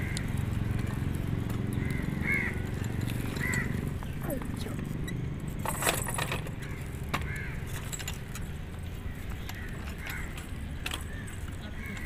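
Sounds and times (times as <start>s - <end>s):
bird calling: 1.7s - 4.6s.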